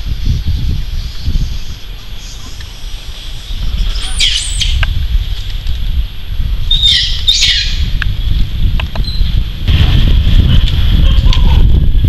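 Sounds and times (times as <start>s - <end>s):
birds calling with swooping notes: 0.0s - 5.0s, 6.6s - 8.4s
steady low rumble: 0.0s - 12.0s.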